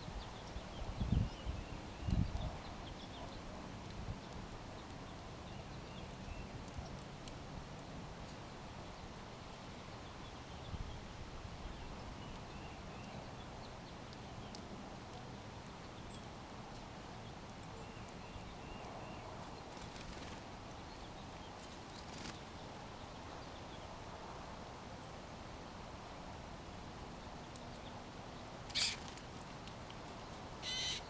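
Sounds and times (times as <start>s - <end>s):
faint bird chirps: 30.6s - 31.0s.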